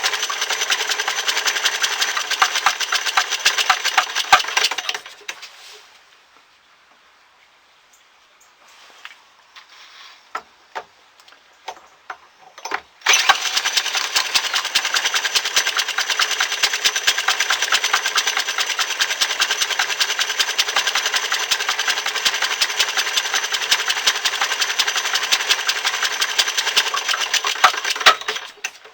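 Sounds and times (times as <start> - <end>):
small gas engine running: 0.0 - 5.4, 13.0 - 28.9.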